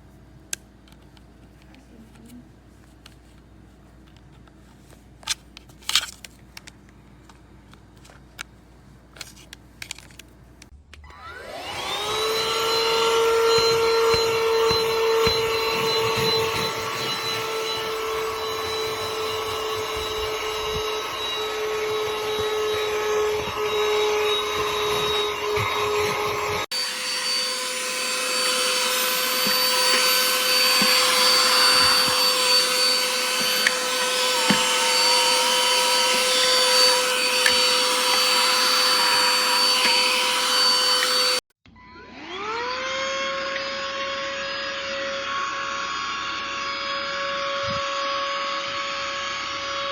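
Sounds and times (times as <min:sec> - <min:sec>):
handheld vacuum motor whine: 0:11.0 - 0:49.9.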